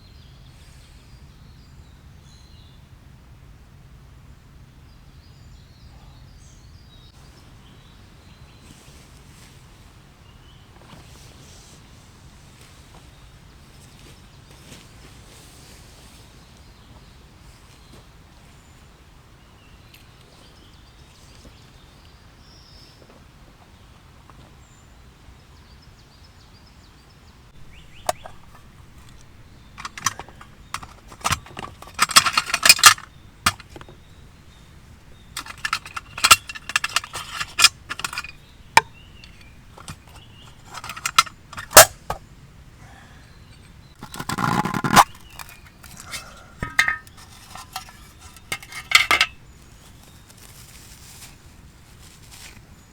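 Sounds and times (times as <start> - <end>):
metal cookware clinking: 27.6 - 33.9, 35.4 - 42.2, 44.4 - 49.4.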